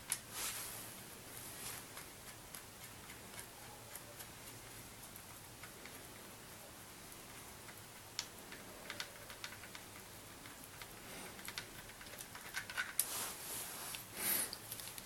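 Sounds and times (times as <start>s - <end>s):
scraping rustle: 0.3s - 2.1s, 11.1s - 15.0s.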